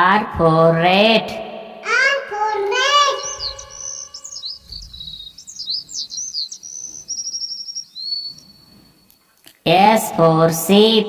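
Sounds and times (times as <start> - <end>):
rat squeaking: 3.0 - 9.0.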